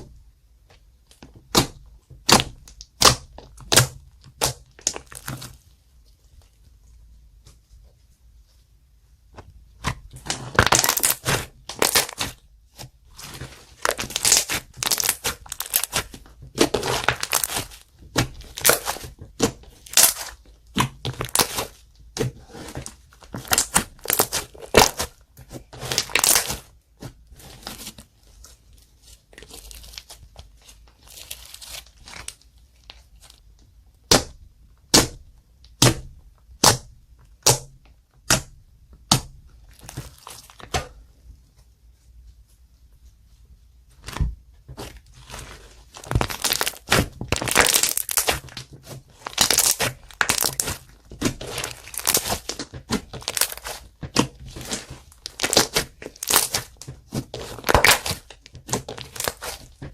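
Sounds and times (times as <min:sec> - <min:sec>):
slime squished by hand: 0:09.8 - 0:28.0, 0:44.8 - 0:59.9.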